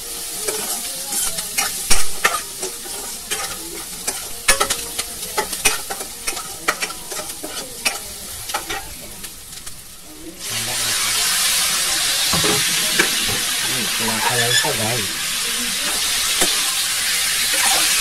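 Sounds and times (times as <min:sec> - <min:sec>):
food sizzling in hot oil: 0:00.0 - 0:18.0
metal spatula scraping a pan: 0:00.3 - 0:08.9, 0:12.4 - 0:15.0.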